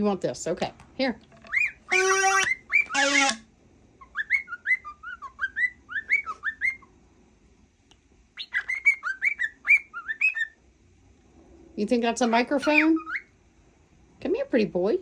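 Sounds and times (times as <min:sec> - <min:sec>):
cockatiel chirping whistled notes: 0:01.5 - 0:03.4, 0:04.0 - 0:06.9, 0:08.4 - 0:10.6, 0:12.6 - 0:13.3.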